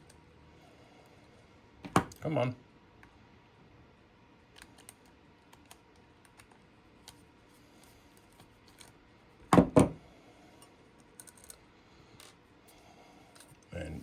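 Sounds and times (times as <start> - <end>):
heavy thumps on table: 9.5 - 10.0.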